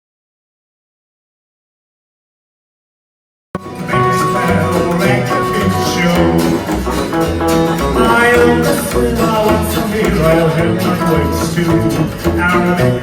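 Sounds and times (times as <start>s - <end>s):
live band playing: 3.6s - 13.0s.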